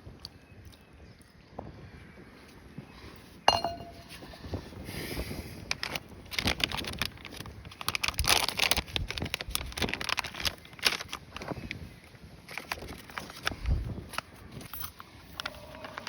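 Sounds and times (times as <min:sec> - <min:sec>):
sharp ringing clink: 0:03.5 - 0:04.2
objects clattering and knocking: 0:03.5 - 0:04.3.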